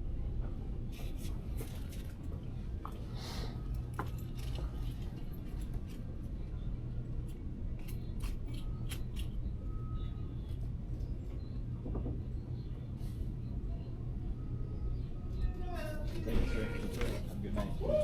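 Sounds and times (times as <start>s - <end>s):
light clicks and jingles: 3.7s - 6.2s.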